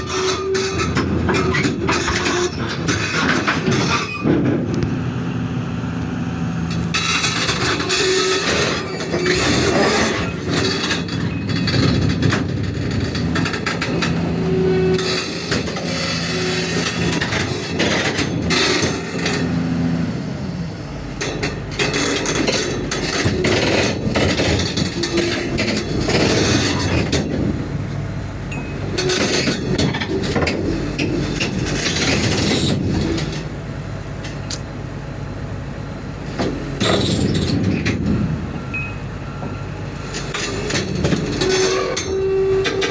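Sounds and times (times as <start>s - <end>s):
metal knocks and clanks: 0.0s - 4.9s, 6.7s - 19.6s, 21.1s - 27.6s, 28.5s - 33.5s, 36.3s - 38.6s
excavator diesel engine running: 0.0s - 42.9s.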